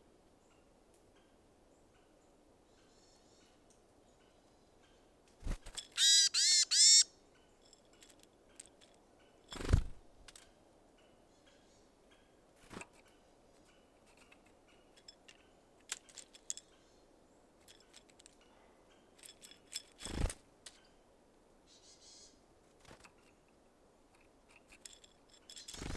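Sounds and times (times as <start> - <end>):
birds pecking at seeds: 5.4 - 7.1, 24.5 - 25.9
bird calls: 6.0 - 7.1.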